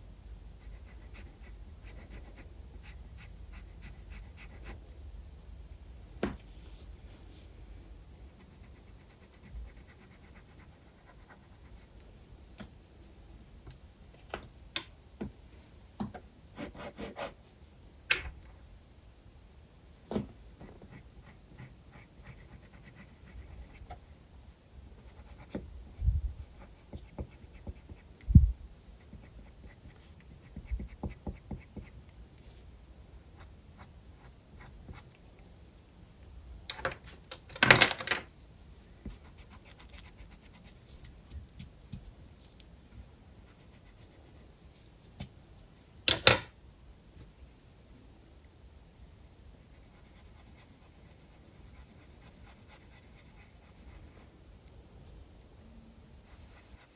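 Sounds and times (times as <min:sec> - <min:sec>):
pencil scratching on paper: 0:00.6 - 0:04.8, 0:08.2 - 0:11.9, 0:16.6 - 0:17.4, 0:20.6 - 0:25.6, 0:26.4 - 0:28.1, 0:29.0 - 0:32.6, 0:38.8 - 0:40.8, 0:49.6 - 0:54.2, 0:56.3 - 0:56.9.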